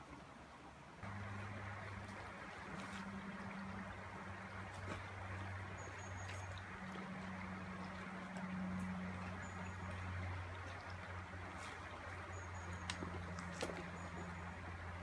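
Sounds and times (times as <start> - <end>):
river water over stones: 0.0 - 15.0
low engine-like hum: 1.0 - 15.0.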